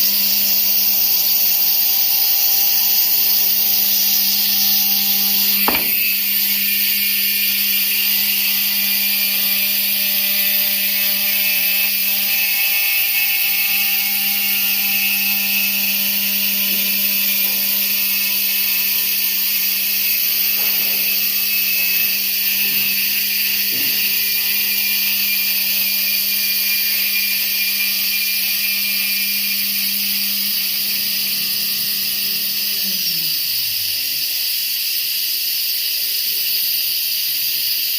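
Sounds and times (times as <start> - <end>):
router spindle whining: 0.0 - 34.8.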